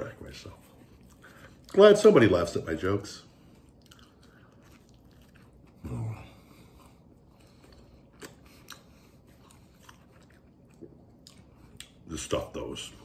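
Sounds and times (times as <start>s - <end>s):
man chewing food: 0.2s - 2.3s, 3.2s - 12.4s
wet mouth clicks: 7.7s - 12.0s.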